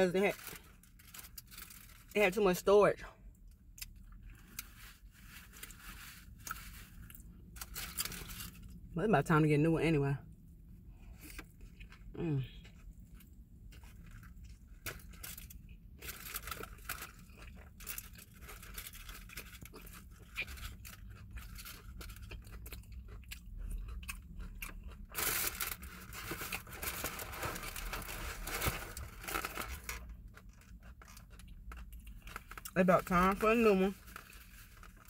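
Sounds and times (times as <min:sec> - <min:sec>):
person chewing and crunching: 0:11.0 - 0:35.0
paper wrapper rustling: 0:25.2 - 0:30.1.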